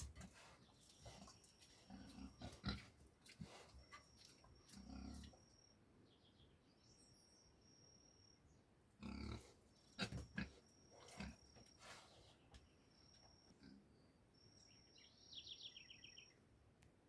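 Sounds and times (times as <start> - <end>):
low animal grunts: 0.0 - 3.6, 4.7 - 5.4, 9.0 - 11.5.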